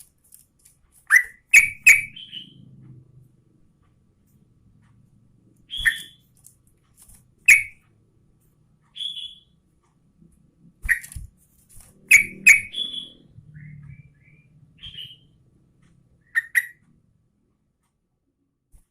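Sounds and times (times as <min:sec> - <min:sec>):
bird whistled notes: 0:05.7 - 0:06.2, 0:12.1 - 0:15.3.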